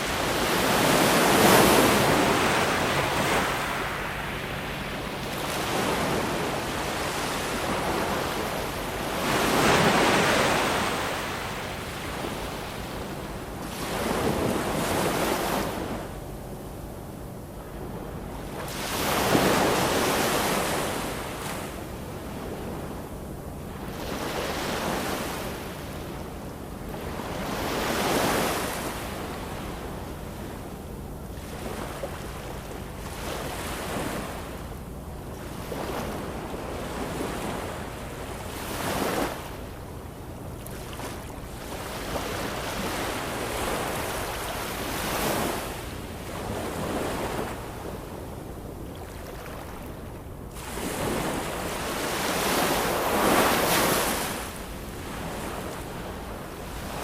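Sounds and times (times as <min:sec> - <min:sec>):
ocean waves washing in: 0:00.0 - 0:16.2, 0:31.4 - 0:57.0.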